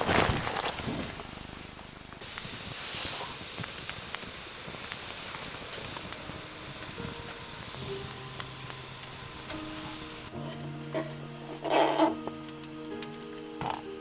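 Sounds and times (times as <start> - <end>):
campfire crackling: 0.0 - 14.0
soft music notes: 5.7 - 14.0.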